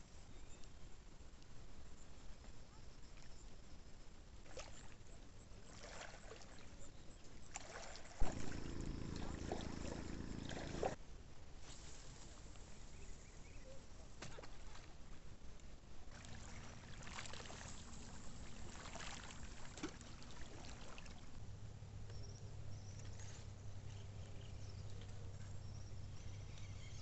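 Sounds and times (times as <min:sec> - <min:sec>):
water splashing and trickling: 0:04.4 - 0:11.0, 0:16.1 - 0:21.4
low steady hum: 0:04.8 - 0:11.2, 0:12.0 - 0:27.0.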